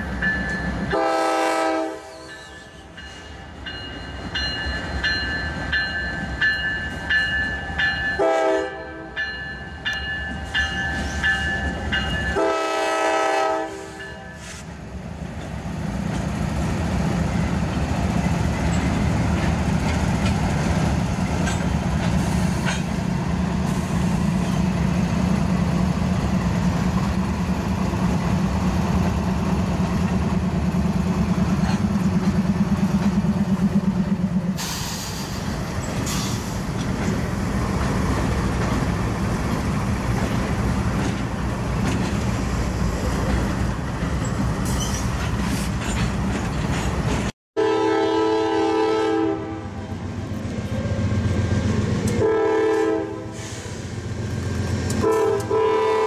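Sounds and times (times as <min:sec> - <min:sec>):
crossing bell ringing: 0:00.0 - 0:01.0, 0:02.2 - 0:12.6, 0:14.0 - 0:14.5
locomotive horn chord: 0:00.9 - 0:02.3, 0:08.2 - 0:09.2, 0:12.3 - 0:14.3, 0:47.6 - 0:50.0, 0:52.1 - 0:53.6, 0:55.0 - 0:56.0
freight cars clickety-clack: 0:17.6 - 0:25.0, 0:30.9 - 0:47.3.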